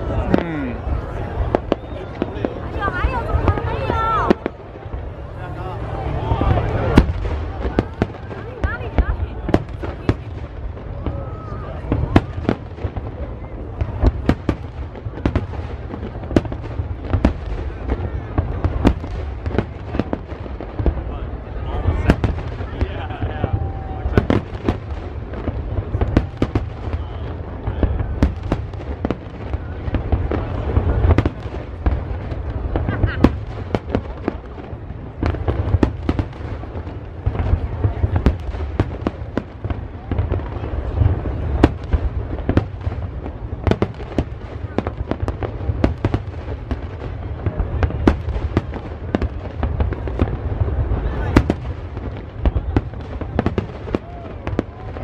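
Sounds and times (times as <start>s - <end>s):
fireworks bangs and cracks: 0.0s - 55.0s
low rumble of bursts: 0.0s - 55.0s.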